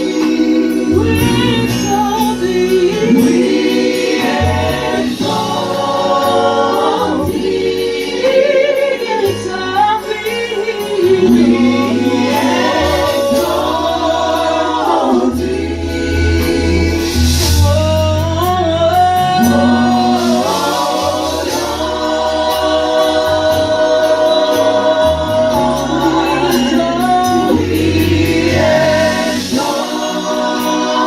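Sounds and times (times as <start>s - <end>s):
group singing a gospel song: 0.0s - 31.0s
instrumental backing: 0.0s - 31.0s
sustained low bass notes: 9.4s - 29.6s.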